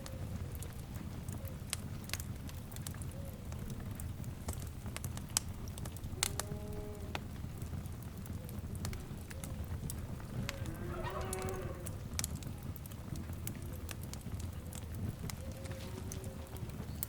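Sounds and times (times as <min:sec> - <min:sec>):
wood fire crackling: 0:00.0 - 0:17.0
animal-like call: 0:10.3 - 0:12.0.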